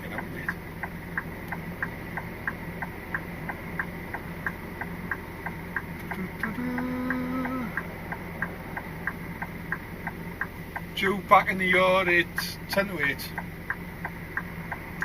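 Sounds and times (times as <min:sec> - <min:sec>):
cab drone: 0:00.0 - 0:15.0
indicator ticking: 0:00.0 - 0:15.0
hummed tone: 0:06.0 - 0:09.4.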